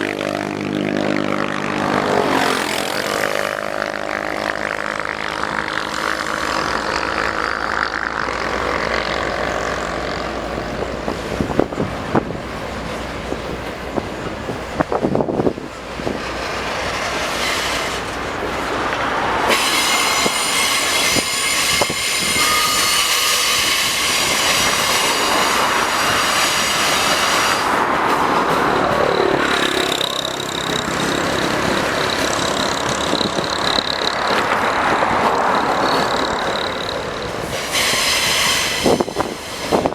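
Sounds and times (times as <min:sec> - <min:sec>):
locomotive engine running: 0:00.0 - 0:39.9
wagons rolling over rails: 0:00.0 - 0:39.9
wheels clicking over rails: 0:01.3 - 0:39.9
wheel squeal: 0:16.2 - 0:39.9.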